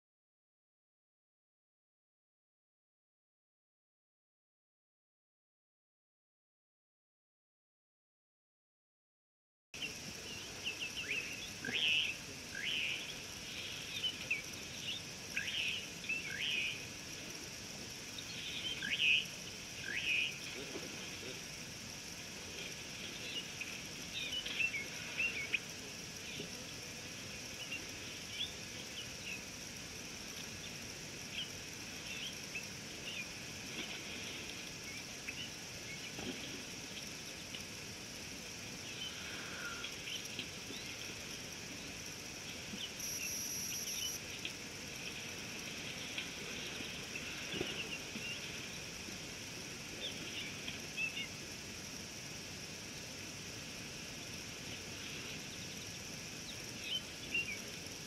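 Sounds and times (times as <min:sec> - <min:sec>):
insect chorus: 0:09.8 - 0:58.0
bird chirps: 0:43.0 - 0:44.2.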